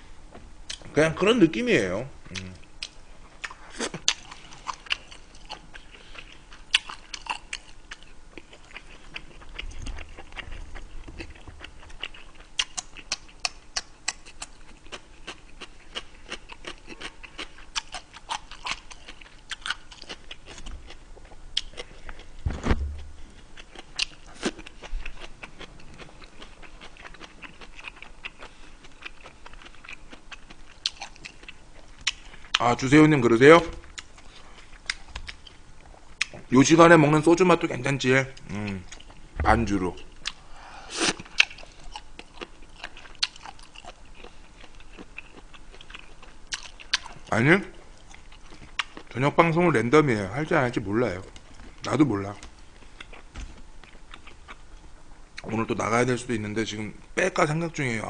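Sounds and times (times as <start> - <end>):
chewing crunchy cabbage: 2.3 - 36.8, 38.3 - 55.8
dull thump: 22.4 - 23.2.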